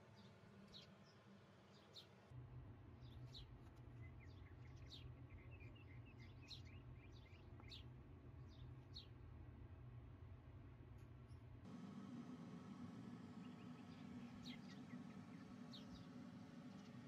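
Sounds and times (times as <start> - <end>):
low steady hum: 11.7 - 17.0
birds chirping: 11.8 - 17.0.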